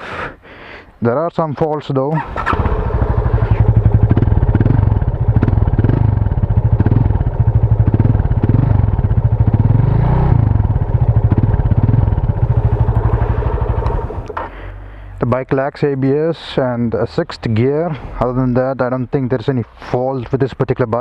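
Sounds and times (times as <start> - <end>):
motorcycle engine idling: 2.3 - 15.2.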